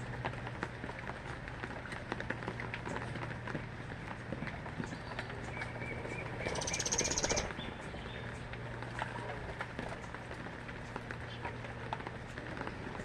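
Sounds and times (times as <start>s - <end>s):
rain falling: 0.0s - 13.0s
small birds chirping: 4.8s - 8.5s
bird trill: 5.5s - 8.2s.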